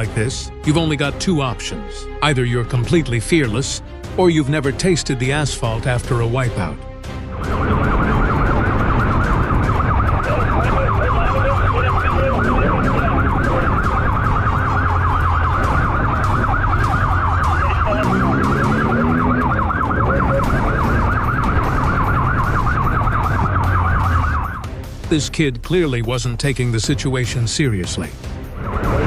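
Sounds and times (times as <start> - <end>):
police siren warbling: 7.2 - 24.7, 28.6 - 29.0
car engine rumble and road noise: 7.2 - 29.0.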